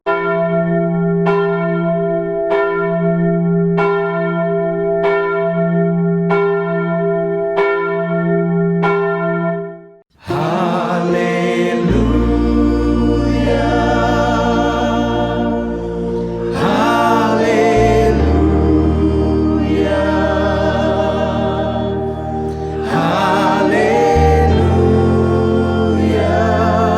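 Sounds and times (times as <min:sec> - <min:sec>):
low drone: 0:10.2 - 0:26.9
voices singing: 0:10.2 - 0:26.9.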